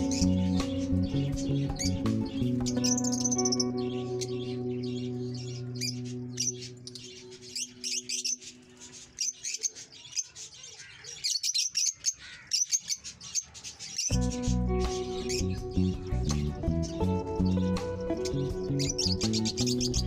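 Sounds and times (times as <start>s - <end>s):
background music with held notes: 0.0s - 9.2s, 14.1s - 20.0s
lovebirds chirping: 0.0s - 20.0s.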